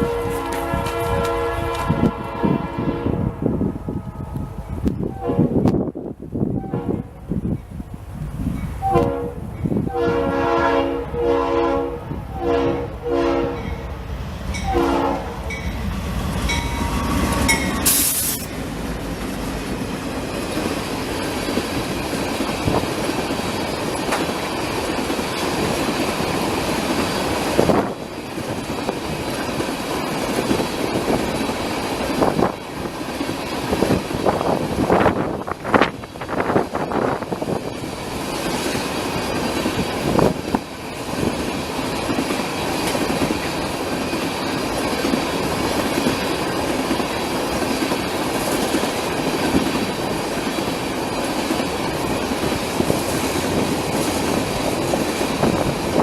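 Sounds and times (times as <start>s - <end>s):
train air horn blasts: 0.0s - 5.7s, 6.6s - 7.2s, 8.8s - 13.8s, 14.6s - 15.6s, 16.5s - 18.5s
train rumbling and wheel clatter: 0.0s - 56.0s
wind buffeting microphone: 0.0s - 56.0s.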